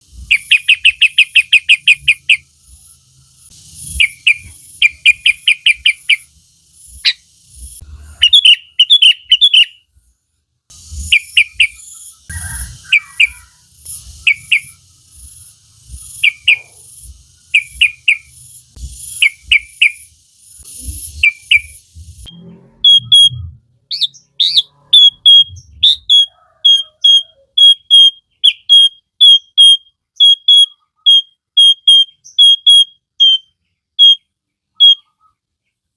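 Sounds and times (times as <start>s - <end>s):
bird chirping rapidly: 0.2s - 9.9s, 10.7s - 35.4s.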